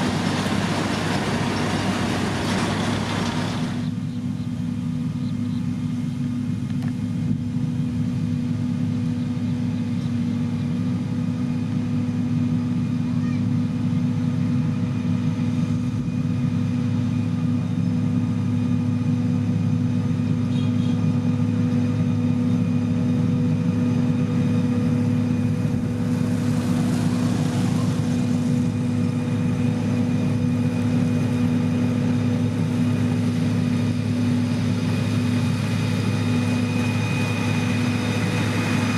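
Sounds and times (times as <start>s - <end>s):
construction machine diesel engine: 0.0s - 38.9s.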